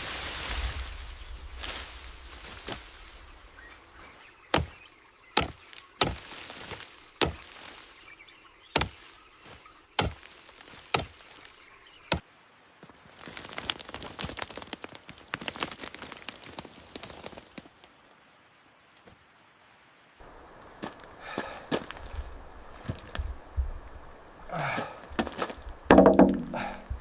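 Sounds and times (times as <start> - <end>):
dense crackling rustle: 0.0 - 3.5, 12.8 - 18.2
sharp chopping strikes: 4.5 - 4.8, 5.4 - 7.6, 8.7 - 9.0, 10.0 - 10.3, 10.9 - 11.3.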